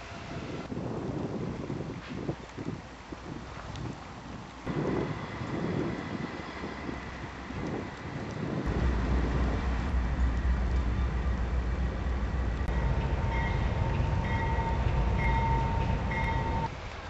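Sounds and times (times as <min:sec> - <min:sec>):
freight cars rumbling: 0:04.7 - 0:17.0.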